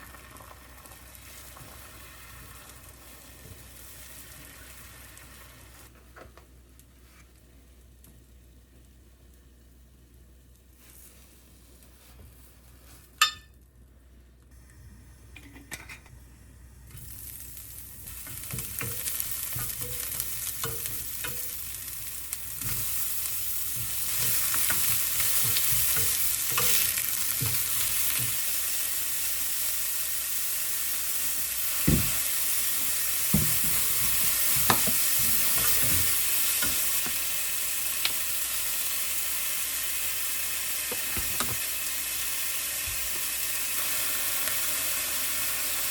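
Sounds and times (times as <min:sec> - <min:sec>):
food sizzling in a pan: 0:00.0 - 0:05.9, 0:16.2 - 0:45.9.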